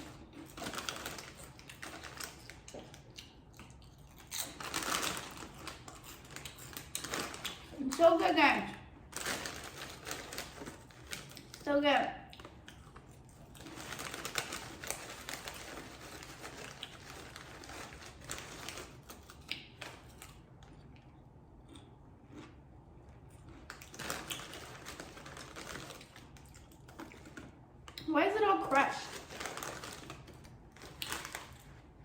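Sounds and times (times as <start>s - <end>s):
crunchy snack chewing: 0.0s - 7.8s, 12.3s - 28.1s.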